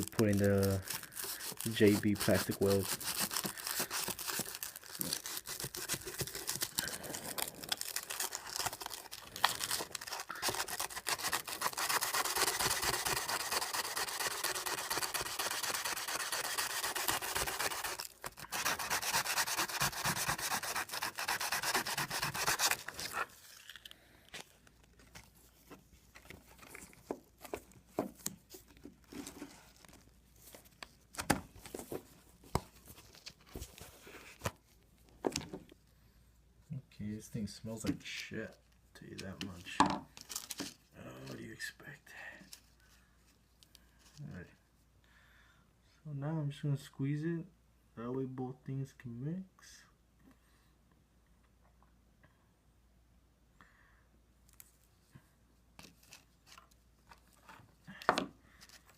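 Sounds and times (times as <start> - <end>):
sanding plastic bumper: 10.5 - 23.2.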